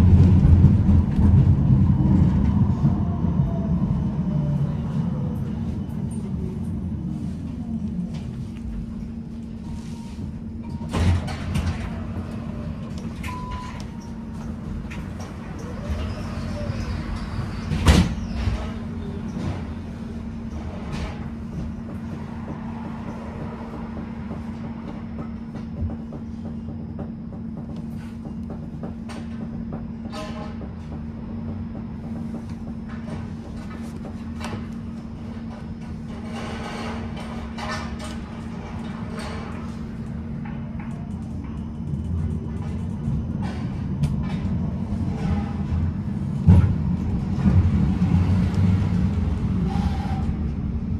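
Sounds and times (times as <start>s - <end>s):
tram electric hum and rumble: 0.0s - 50.9s
rail clicks and rattles: 20.3s - 49.6s.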